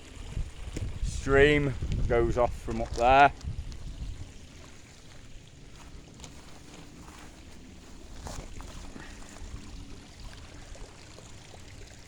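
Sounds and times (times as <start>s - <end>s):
stream running: 0.0s - 12.0s.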